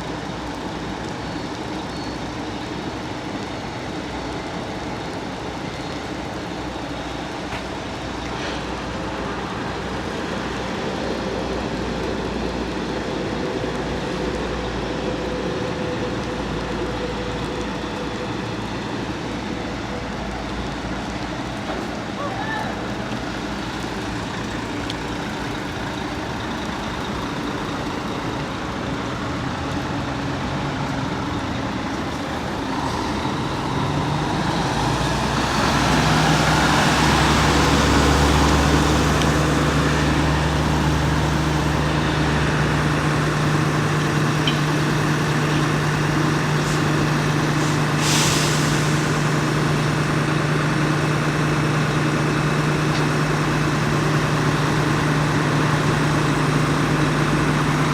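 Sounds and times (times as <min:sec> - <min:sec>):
fire truck engine running: 0:00.0 - 0:57.9
short hiss: 0:47.6 - 0:49.1.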